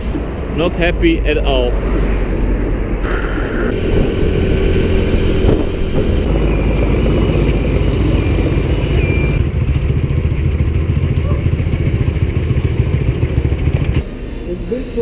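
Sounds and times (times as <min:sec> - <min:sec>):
road and wind rumble: 0:00.0 - 0:15.0
short pitched beeps: 0:06.5 - 0:09.4.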